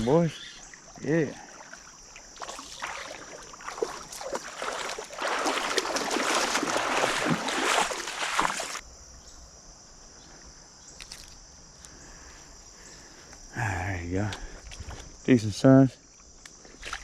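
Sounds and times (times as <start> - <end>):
water splashing and sloshing: 0.6 - 8.8, 16.7 - 17.0
creek rushing: 1.0 - 8.8.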